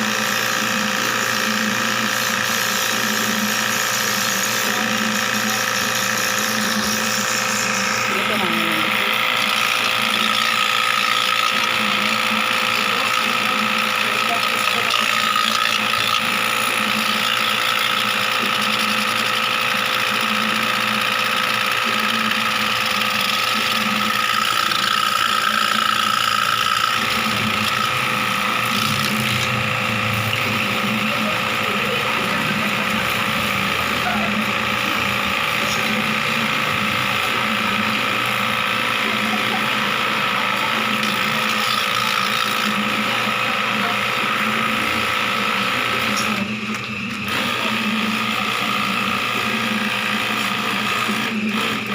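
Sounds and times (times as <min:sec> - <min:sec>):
small machine motor whining: 0:00.0 - 0:51.9.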